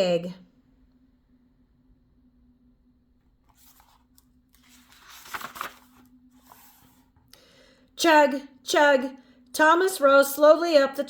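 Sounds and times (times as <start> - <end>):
book page turning: 3.4 - 7.3.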